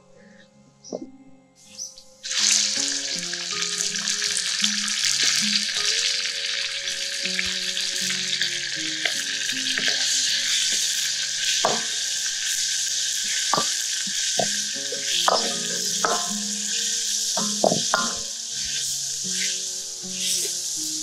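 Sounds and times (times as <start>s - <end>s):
meat sizzling in hot oil: 2.2s - 21.0s
metal ladle scraping wok: 9.0s - 21.0s.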